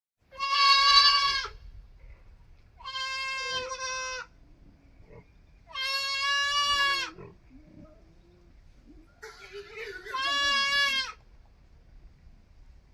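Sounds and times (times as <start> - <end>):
goat kid bleating: 0.3 - 1.6, 2.8 - 4.3, 5.7 - 7.3, 9.2 - 11.2.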